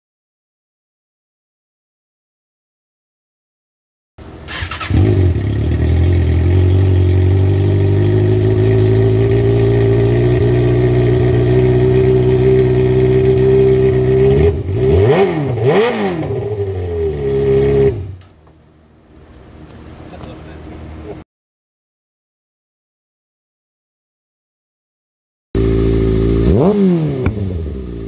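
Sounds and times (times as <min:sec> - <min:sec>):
motorcycle engine revving: 0:04.2 - 0:18.3, 0:25.6 - 0:28.0
motorcycle engine idling: 0:04.6 - 0:14.4, 0:25.6 - 0:26.6.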